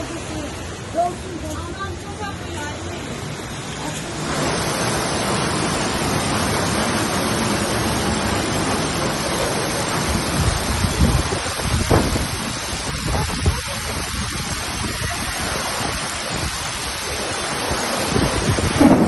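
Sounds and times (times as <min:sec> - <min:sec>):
floodwater rushing: 0:00.0 - 0:19.0
low rumbling bumps: 0:18.1 - 0:19.0.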